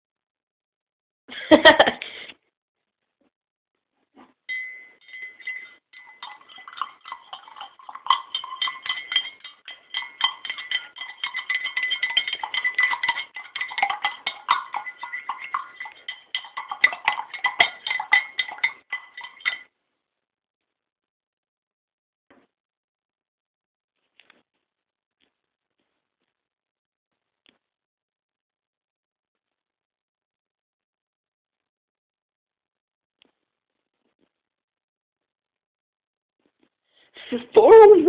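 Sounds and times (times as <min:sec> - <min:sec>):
steady ringing tone: 0:04.5 - 0:19.6
clinking and rattling: 0:04.5 - 0:19.7.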